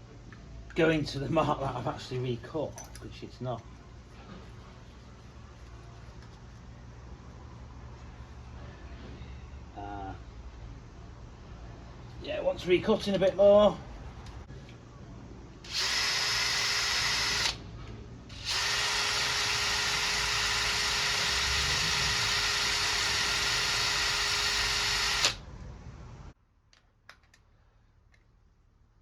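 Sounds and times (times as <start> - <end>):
power tool grinding whine: 18.4 - 25.4.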